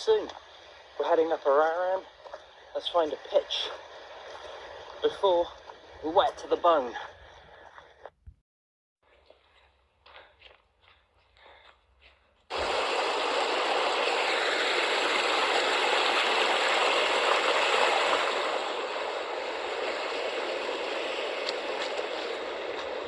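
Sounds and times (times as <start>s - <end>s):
rainwater running down path: 0.0s - 7.1s, 12.5s - 23.0s
soft footsteps: 0.0s - 8.2s, 9.0s - 12.5s, 19.6s - 23.0s
heavy rain: 12.5s - 23.0s.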